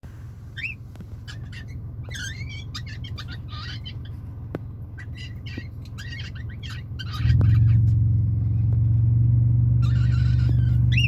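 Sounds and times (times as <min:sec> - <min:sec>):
steady low hum: 0:00.0 - 0:11.0
bird chirping and calling: 0:00.6 - 0:08.0, 0:09.8 - 0:11.0.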